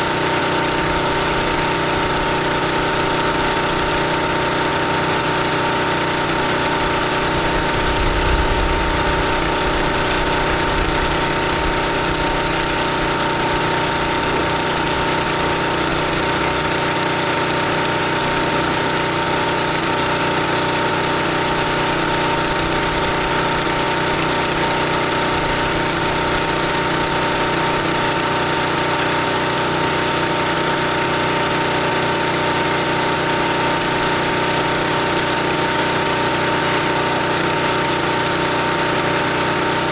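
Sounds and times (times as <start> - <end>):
pressure washer engine running: 0.0 - 39.9
water spray hissing: 35.0 - 39.6.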